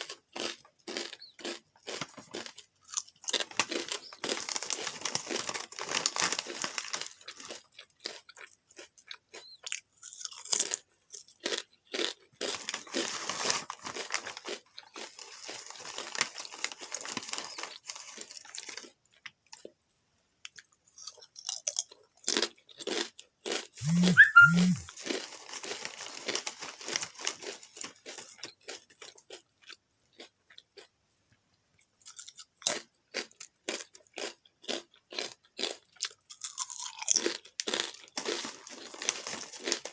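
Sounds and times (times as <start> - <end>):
potato chips crunching: 0.0 - 19.8, 20.4 - 30.9, 32.0 - 39.9.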